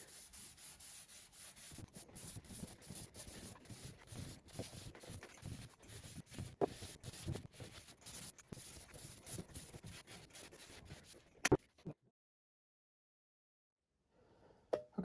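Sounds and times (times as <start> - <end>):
steel wool rubbing wood: 0.0 - 11.4.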